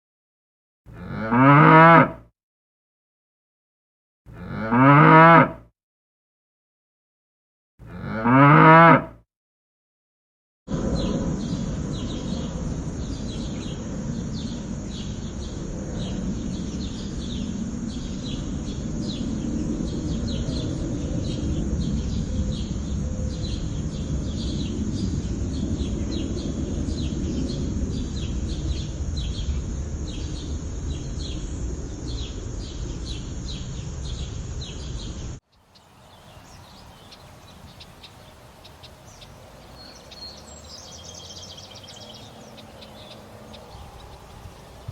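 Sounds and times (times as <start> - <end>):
loud low rumbling noise: 10.7 - 35.4, 36.2 - 44.9
bird chirping: 11.0 - 44.9
faint bird calls: 35.5 - 44.9.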